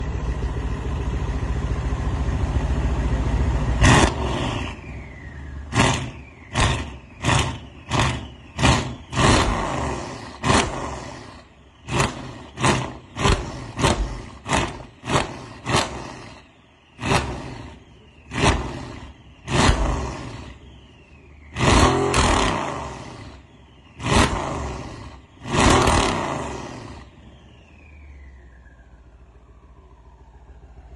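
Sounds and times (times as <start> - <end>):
car engine idling: 0.0 - 30.9
car engine revving: 3.6 - 27.5.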